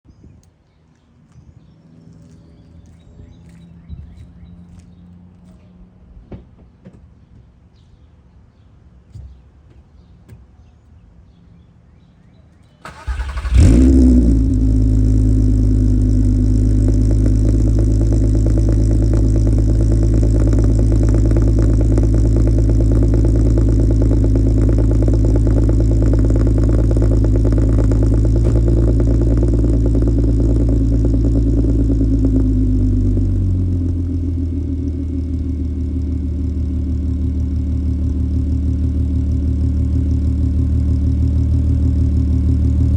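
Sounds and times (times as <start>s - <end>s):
car engine cranking: 12.8s - 36.6s
car engine idling: 12.9s - 42.9s.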